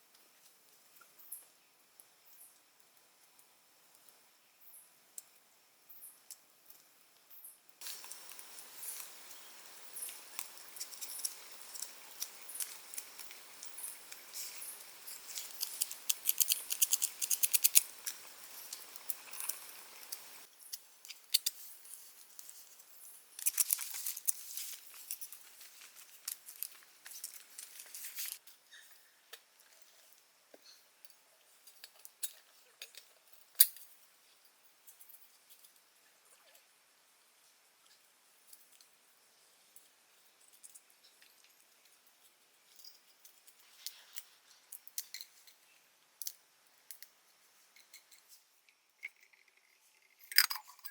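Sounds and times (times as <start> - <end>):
soft steady hiss: 0.0 - 50.9
clicking and rustling of handling: 10.4 - 22.8, 23.4 - 28.4.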